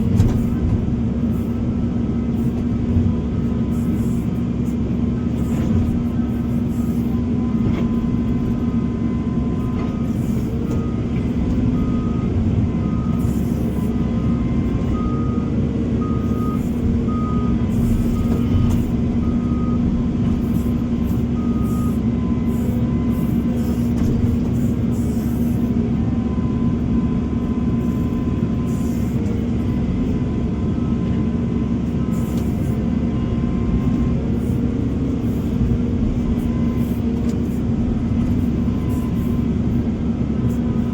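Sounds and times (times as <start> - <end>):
diesel construction machinery running: 0.0 - 40.9
backup alarm beeping: 9.1 - 19.8.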